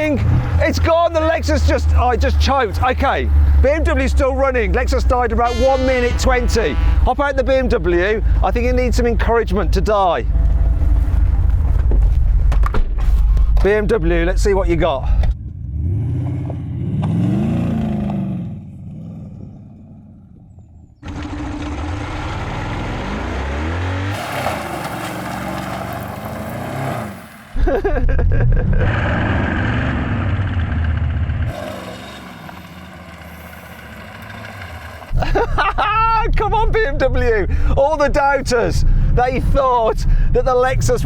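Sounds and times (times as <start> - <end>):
car engine revving: 0.0 - 12.0, 15.4 - 27.6, 28.7 - 35.8.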